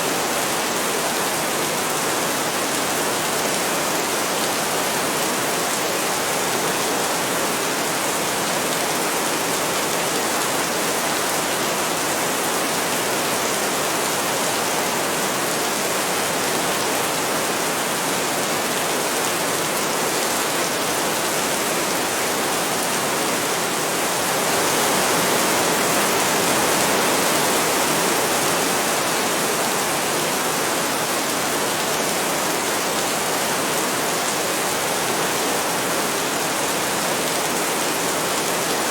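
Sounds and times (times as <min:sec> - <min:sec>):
heavy rain falling: 0:00.1 - 0:38.9.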